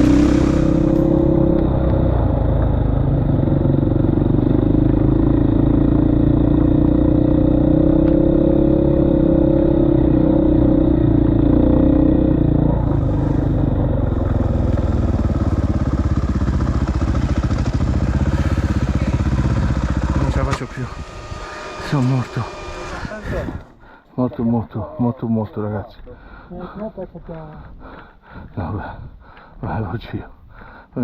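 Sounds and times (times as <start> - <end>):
motorcycle engine running: 0.0 - 23.8.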